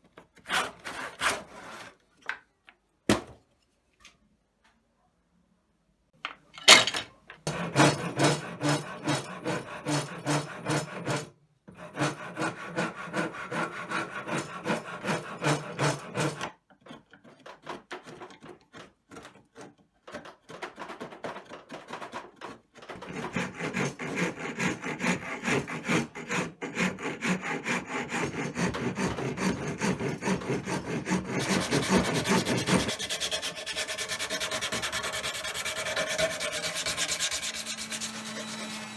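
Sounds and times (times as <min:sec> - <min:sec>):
hand tool rubbing on wood: 0:23.4 - 0:38.9.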